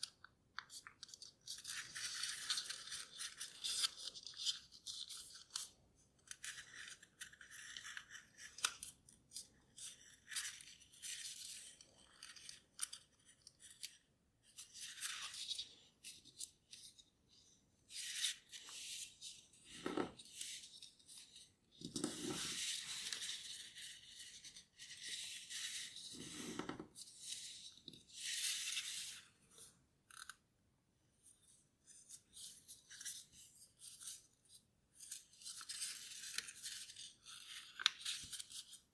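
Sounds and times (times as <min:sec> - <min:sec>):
paper rustling and crinkling: 0:00.6 - 0:05.7.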